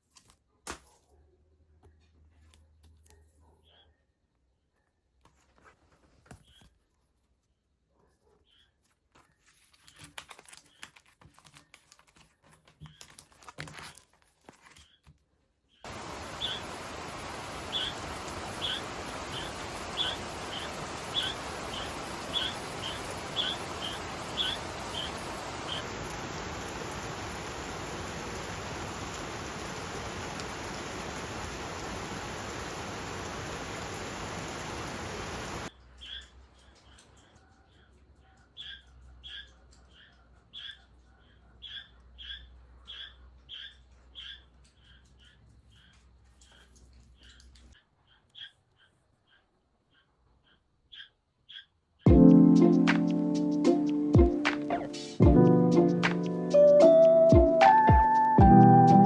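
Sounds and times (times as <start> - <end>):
steady hiss: 15.9 - 35.7.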